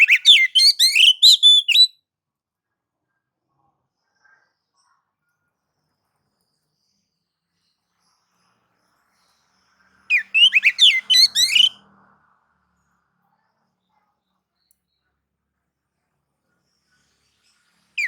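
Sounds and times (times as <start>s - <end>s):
bird whistling song: 0.0s - 1.9s, 10.1s - 11.8s.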